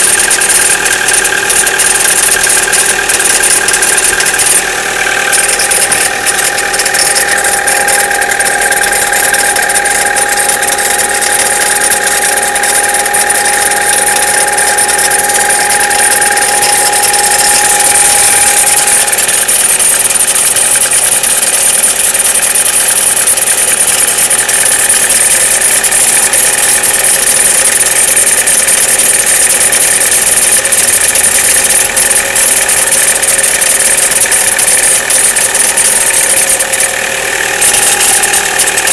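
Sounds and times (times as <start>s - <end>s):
car engine idling: 0.0s - 38.9s
ringing whine: 0.0s - 38.9s.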